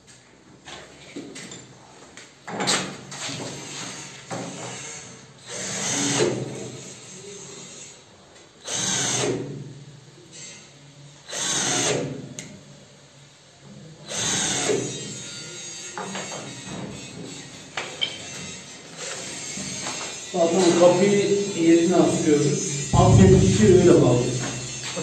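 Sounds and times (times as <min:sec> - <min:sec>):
drill driving screws: 0:03.9 - 0:06.4, 0:08.6 - 0:09.4, 0:11.3 - 0:12.0, 0:14.1 - 0:14.9.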